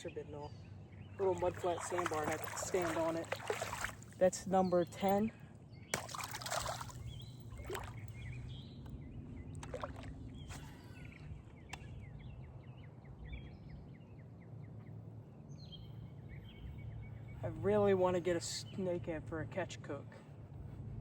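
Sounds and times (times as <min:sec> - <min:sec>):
low wash of water: 0:01.2 - 0:04.2, 0:09.6 - 0:10.3
water splashing: 0:01.2 - 0:04.3, 0:06.0 - 0:08.1, 0:09.6 - 0:10.2.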